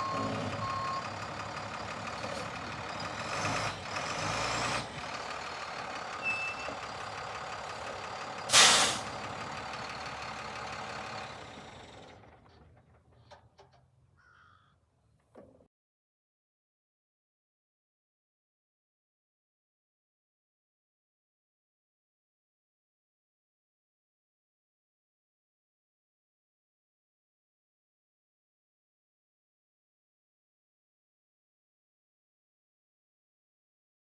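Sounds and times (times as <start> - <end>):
reversing beeper: 0.0 - 1.2, 6.2 - 6.8
diesel truck engine running: 0.0 - 13.6
air brake hiss: 8.5 - 9.1
air hissing: 8.5 - 9.1.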